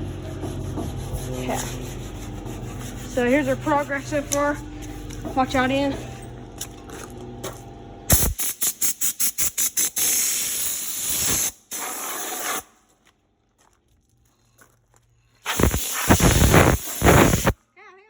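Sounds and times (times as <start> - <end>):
air blow gun hissing blasts: 8.1 - 12.6, 15.4 - 17.6.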